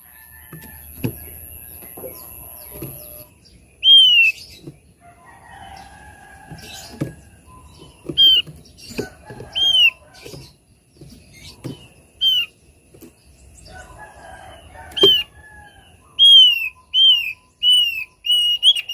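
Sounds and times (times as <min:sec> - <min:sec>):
soft bird chattering: 0:00.7 - 0:04.9, 0:05.5 - 0:12.6, 0:16.1 - 0:18.9
bird whistled notes: 0:03.8 - 0:04.4, 0:12.2 - 0:12.5, 0:16.2 - 0:18.9.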